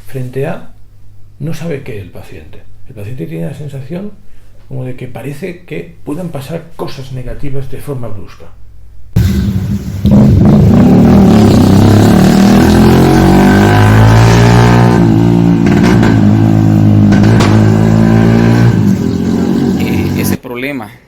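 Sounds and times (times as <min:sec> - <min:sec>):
loud motorcycle engine: 0:09.2 - 0:20.4.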